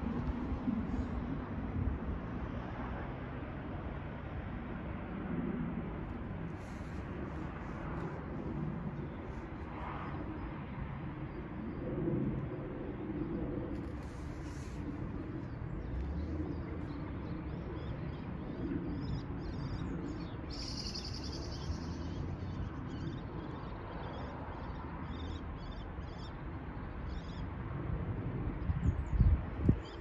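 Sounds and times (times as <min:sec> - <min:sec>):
small birds chirping: 0:18.9 - 0:23.2.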